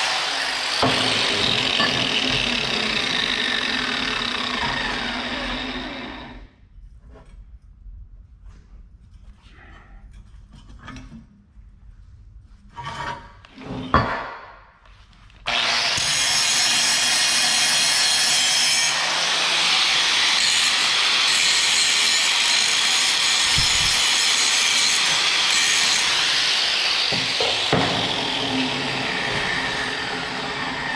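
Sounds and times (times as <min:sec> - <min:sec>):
power grinder grinding steel: 0:00.0 - 0:06.4, 0:15.5 - 0:30.9.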